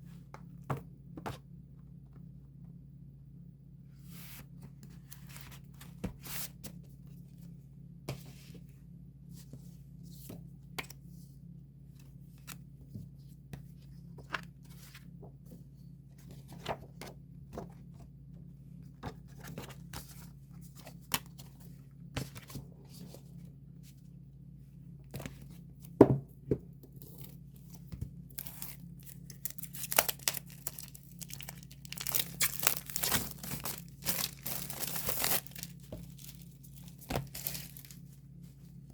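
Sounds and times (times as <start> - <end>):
faint low hum: 0.0 - 38.9
packaging tearing and crinkling: 28.4 - 36.4.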